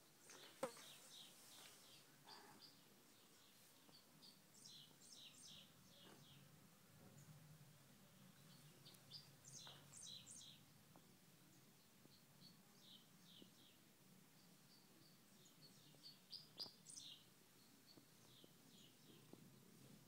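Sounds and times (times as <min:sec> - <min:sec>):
faint bird chirps: 0:00.3 - 0:06.5.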